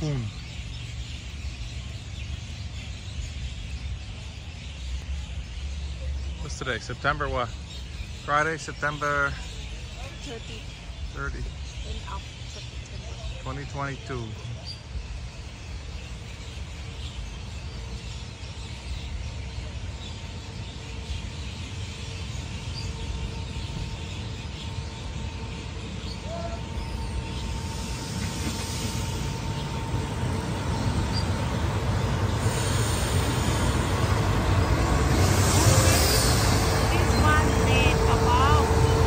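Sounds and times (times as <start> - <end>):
diesel train engine and wheel rumble: 0.0 - 39.0
high hiss: 32.2 - 37.2.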